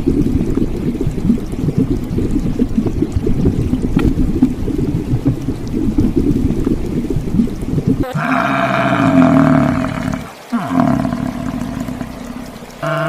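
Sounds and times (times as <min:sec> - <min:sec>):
low rumbling noise: 0:00.0 - 0:13.0
large animal calling: 0:08.0 - 0:13.0.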